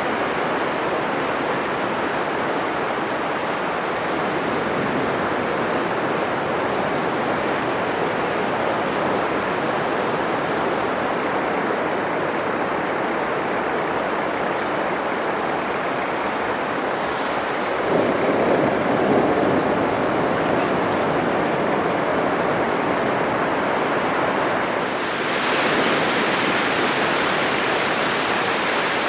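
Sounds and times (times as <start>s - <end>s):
surf breaking on beach: 9.1s - 29.0s.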